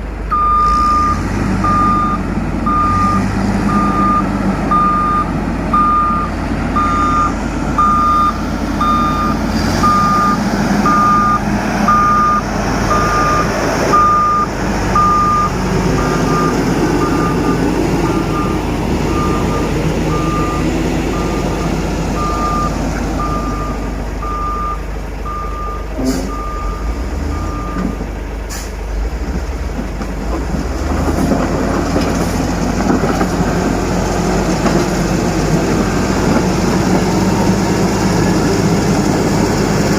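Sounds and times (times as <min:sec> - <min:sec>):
heavy diesel machine running: 0:00.0 - 0:39.9
reversing alarm beeps: 0:00.3 - 0:28.0.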